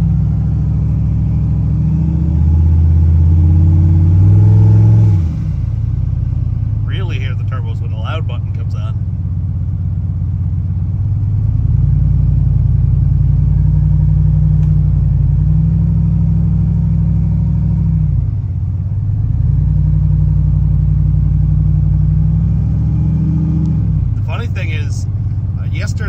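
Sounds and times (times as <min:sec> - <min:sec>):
car engine accelerating: 0:00.0 - 0:09.1, 0:09.9 - 0:26.0.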